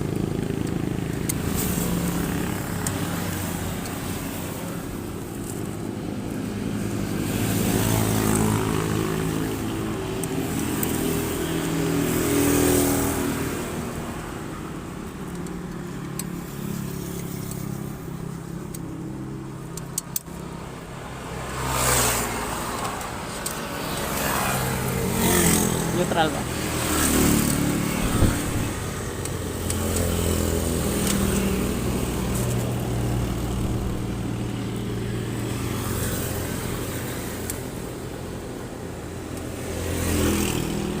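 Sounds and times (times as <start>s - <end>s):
vehicles passing: 0.0s - 41.0s
sharp clicks: 22.0s - 24.3s, 26.9s - 34.1s
motorcycle engine running: 23.9s - 35.0s.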